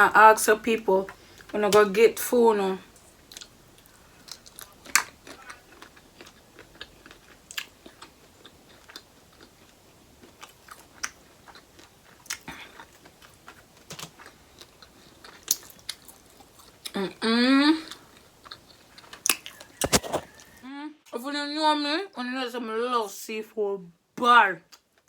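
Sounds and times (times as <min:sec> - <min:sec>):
person chewing and biting: 0:03.3 - 0:16.9, 0:17.9 - 0:20.6.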